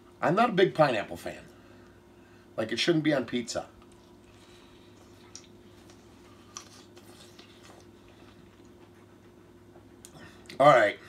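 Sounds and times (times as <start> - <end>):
steady low hum: 0.0 - 11.0
faint chewing: 3.8 - 10.6
wet mouth clicks: 4.9 - 8.0.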